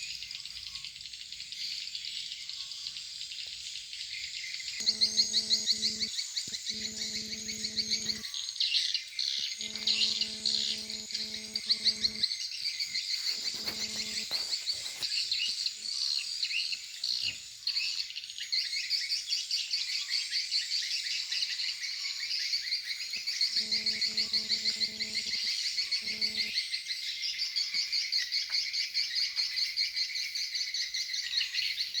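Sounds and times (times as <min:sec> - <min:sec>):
low electrical hum: 0:04.8 - 0:08.2, 0:09.6 - 0:12.2
swiftlet calls from speakers: 0:09.6 - 0:12.2, 0:12.9 - 0:15.1, 0:23.6 - 0:26.5.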